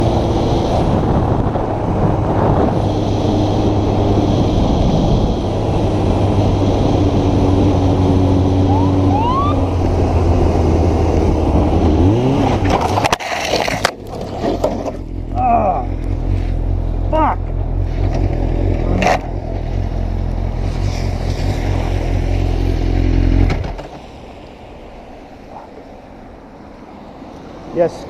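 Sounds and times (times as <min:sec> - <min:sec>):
wind rush: 0:00.0 - 0:14.5
police siren whoops: 0:08.7 - 0:09.7
knocks and scrapes: 0:12.4 - 0:15.4.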